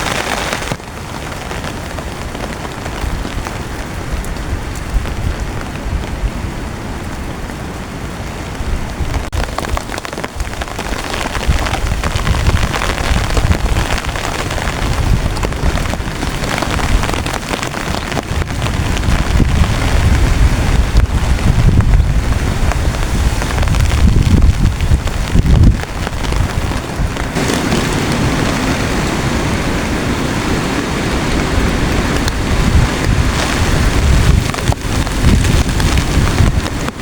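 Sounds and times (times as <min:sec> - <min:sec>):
heavy rain on a tent: 0:00.0 - 0:37.0
wind gusts rumbling: 0:00.0 - 0:37.0.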